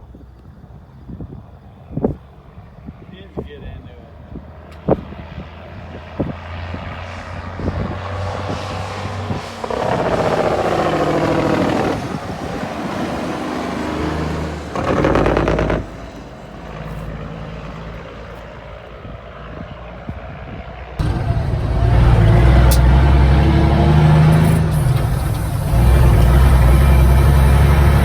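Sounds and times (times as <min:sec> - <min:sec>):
truck diesel engine revving: 0:07.2 - 0:18.0, 0:21.0 - 0:28.0.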